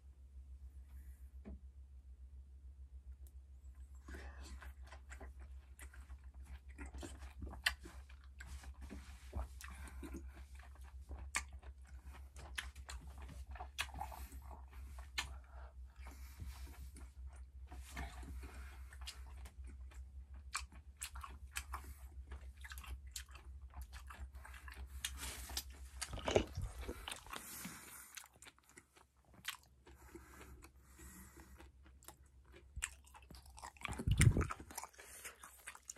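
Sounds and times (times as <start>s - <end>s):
low hum: 0.0s - 28.1s
person chewing fruit: 3.2s - 35.9s.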